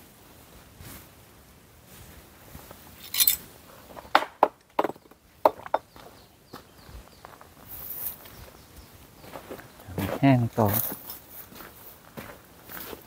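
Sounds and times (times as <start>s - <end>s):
leaves rustling: 0.0s - 4.0s, 7.2s - 13.0s.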